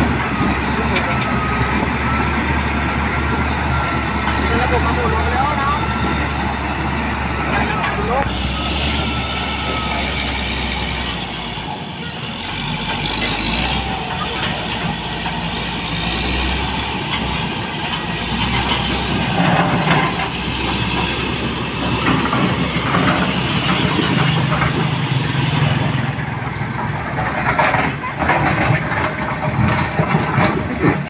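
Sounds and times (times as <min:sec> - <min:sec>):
diesel machinery running: 0:00.0 - 0:31.0.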